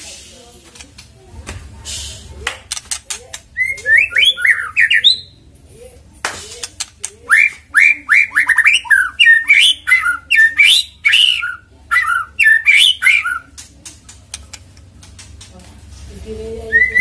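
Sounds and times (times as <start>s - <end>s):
songbird singing rapid notes: 3.4s - 5.4s, 7.3s - 13.6s.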